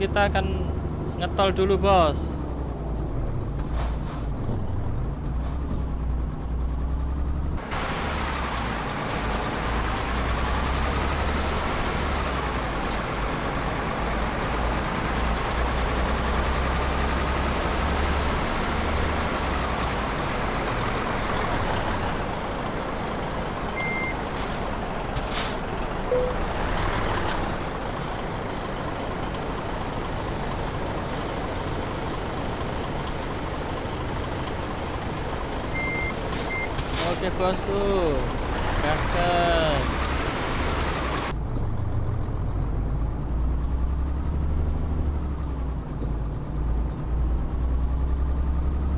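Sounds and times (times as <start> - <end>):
engine whine: 0.0 - 43.5
diesel truck engine running: 0.0 - 48.9
short high beep: 26.1 - 26.4.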